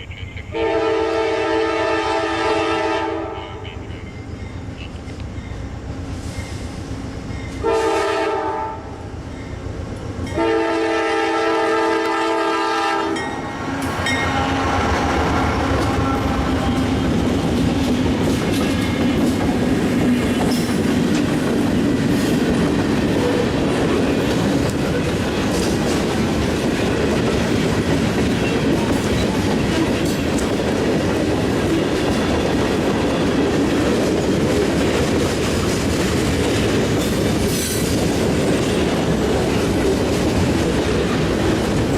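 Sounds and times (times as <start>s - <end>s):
train horn chord: 0.0s - 4.2s, 7.6s - 9.0s, 10.3s - 13.3s
train rumbling past: 0.0s - 41.9s.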